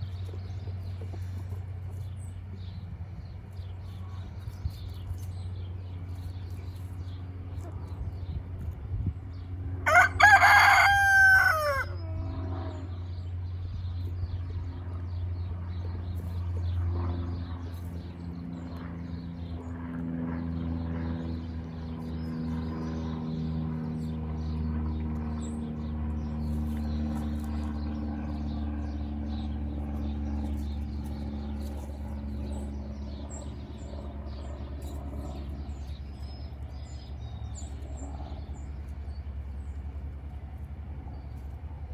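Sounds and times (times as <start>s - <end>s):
rooster crowing: 9.8s - 12.1s
faint chicken sounds: 9.8s - 13.0s.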